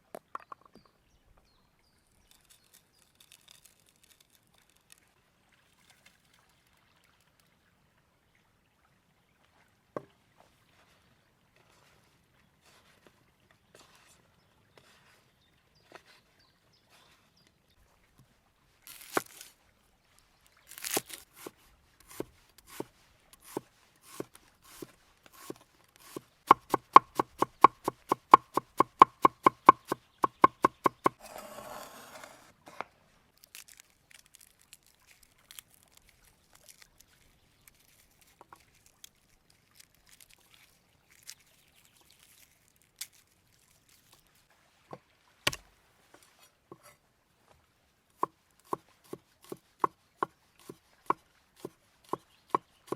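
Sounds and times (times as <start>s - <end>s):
knife chopping on cutting board: 22.1s - 31.2s.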